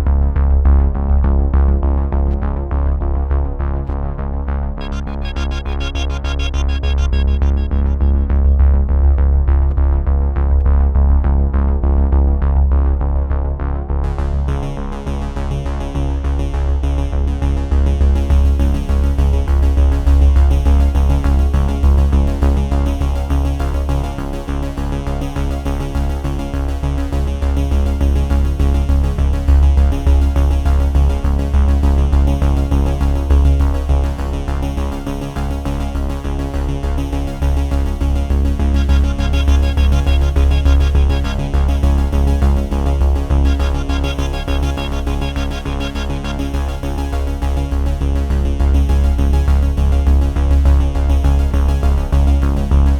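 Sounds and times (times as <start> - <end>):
synthesizer music with heavy bass: 4.7 - 10.9, 36.9 - 52.9.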